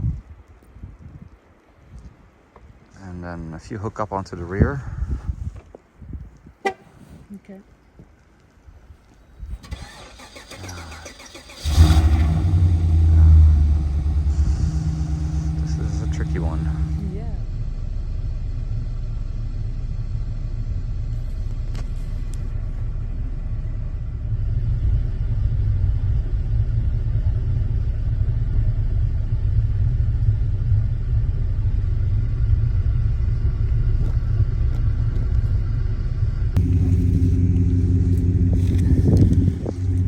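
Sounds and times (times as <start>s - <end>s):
car engine rumbling: 9.5s - 40.0s.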